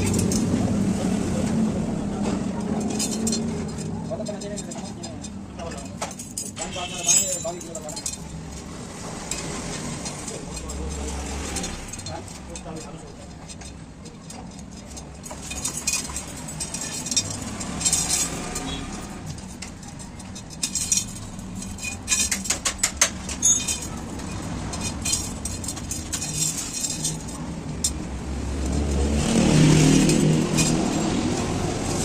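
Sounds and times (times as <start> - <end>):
hand tools clinking on metal: 0.0 - 0.8, 1.9 - 32.0
vehicle passing close: 0.0 - 4.1, 23.7 - 32.0
street traffic rumble: 0.0 - 32.0.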